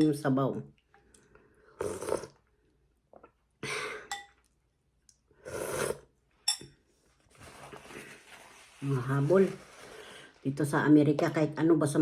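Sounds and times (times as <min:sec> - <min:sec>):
slurping soup: 0:01.0 - 0:02.6, 0:05.4 - 0:06.2
spoon clinking on bowl: 0:04.1 - 0:04.4, 0:06.5 - 0:06.8.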